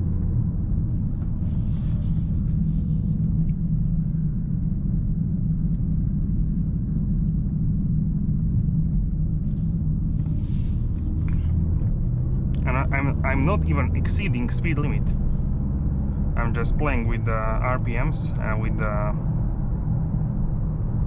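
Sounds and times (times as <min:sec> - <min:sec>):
road noise: 0:00.0 - 0:03.9, 0:09.7 - 0:21.0
car engine rumbling: 0:00.0 - 0:21.0.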